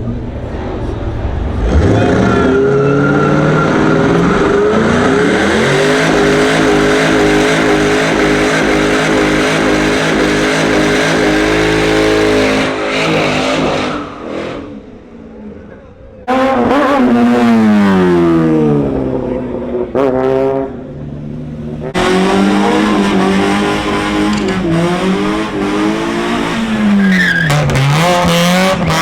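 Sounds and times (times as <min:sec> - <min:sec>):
car engine revving hard: 0:01.5 - 0:14.8, 0:21.8 - 0:29.0.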